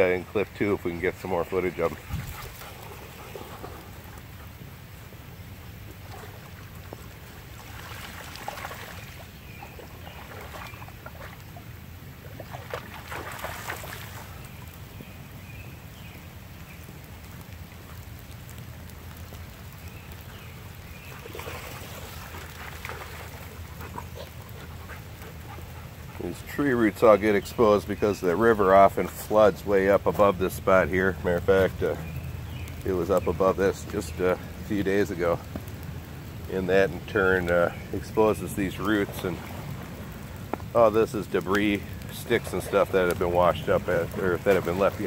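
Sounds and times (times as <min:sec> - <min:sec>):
crackling hiss: 0:00.0 - 0:45.0
wind rumble on microphone: 0:01.7 - 0:11.2
heavy rain falling: 0:13.0 - 0:45.0.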